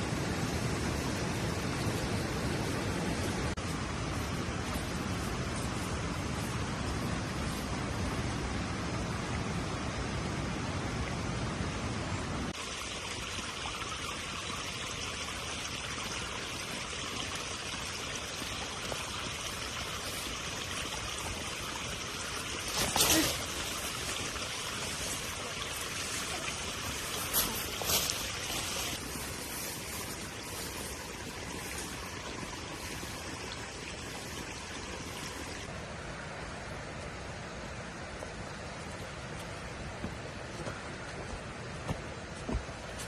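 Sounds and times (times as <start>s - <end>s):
running water hiss: 0.0s - 43.0s.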